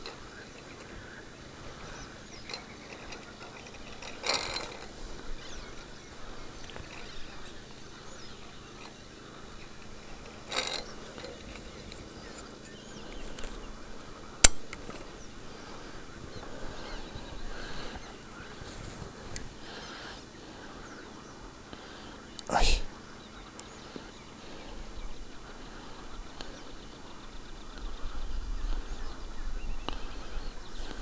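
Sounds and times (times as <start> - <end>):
brief rustles: 0.0 - 20.3
faint bird chirps: 0.0 - 31.0
sharp click: 14.4 - 15.1.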